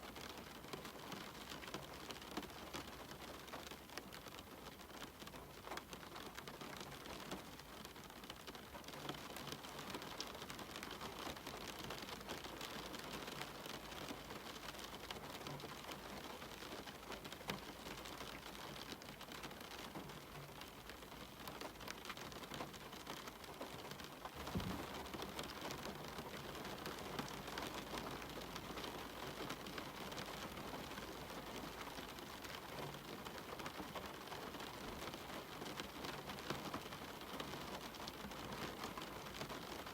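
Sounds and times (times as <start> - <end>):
rain on a window: 0.0 - 39.9
dull low thump: 24.4 - 25.0.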